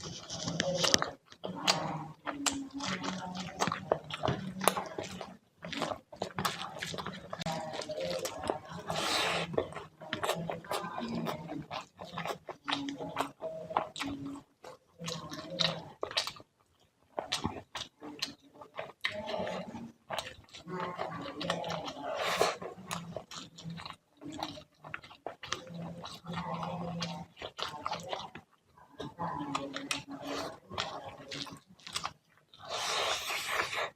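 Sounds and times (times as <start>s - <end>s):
person chewing food: 0.0s - 33.9s.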